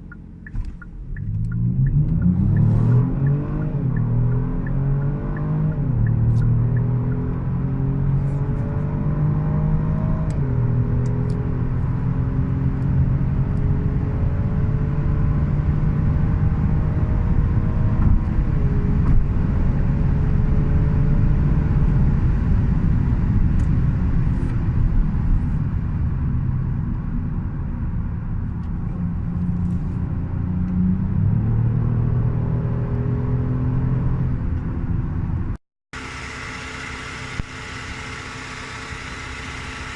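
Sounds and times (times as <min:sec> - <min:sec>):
car engine accelerating hard: 0:00.0 - 0:23.6, 0:29.0 - 0:39.9
road and wind rumble: 0:00.0 - 0:39.9
steady engine hum: 0:34.3 - 0:39.9.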